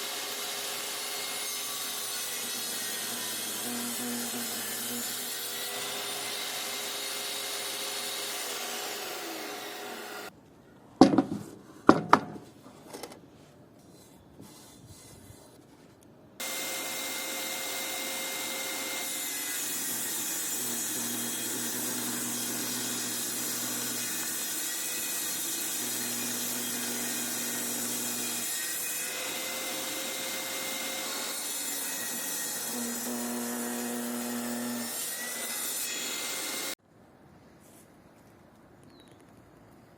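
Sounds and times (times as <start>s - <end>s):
bandsaw cutting wood: 0.0s - 10.3s, 16.4s - 36.8s.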